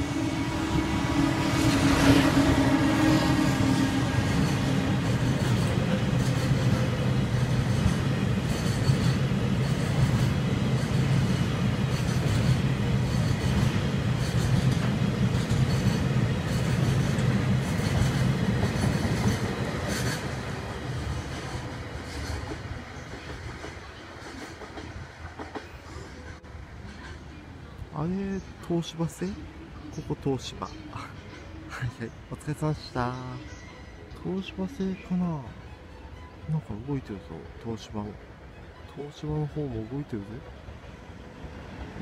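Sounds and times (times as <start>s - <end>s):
freight train wheels rumbling: 0.0s - 28.6s.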